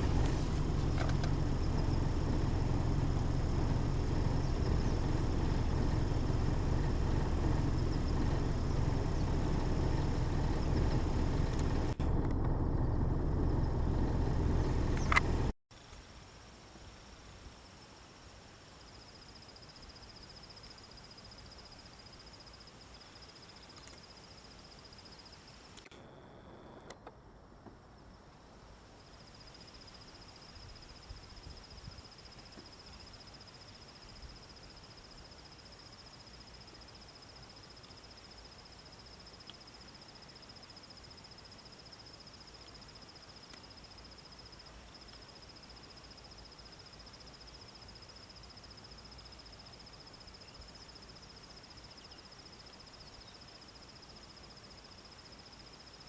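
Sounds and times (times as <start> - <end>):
high-pitched insect trill: 0.0 - 12.0, 17.5 - 25.8, 28.9 - 56.0
sharp click: 14.9 - 15.3.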